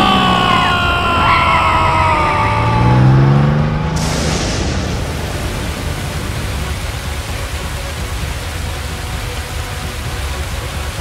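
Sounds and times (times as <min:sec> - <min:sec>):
low rising tone: 0:00.0 - 0:06.8.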